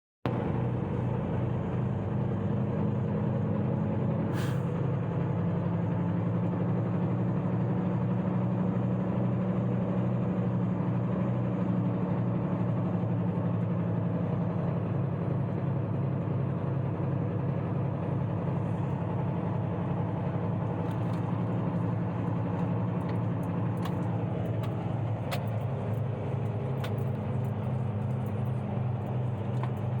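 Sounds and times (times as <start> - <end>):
truck engines idling: 0.3 - 14.1, 14.7 - 30.0
short air hiss: 4.3 - 4.7.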